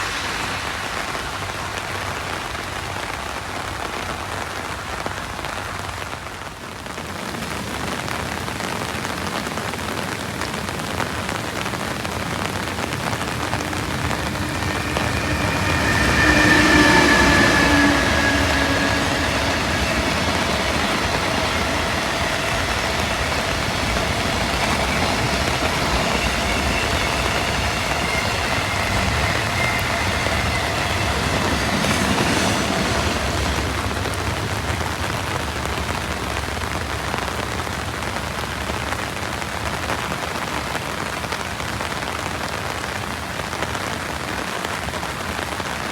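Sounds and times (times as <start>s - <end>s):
freight train passing: 0.0s - 45.9s
heavy rain: 0.0s - 45.9s
locomotive whine: 10.5s - 37.8s.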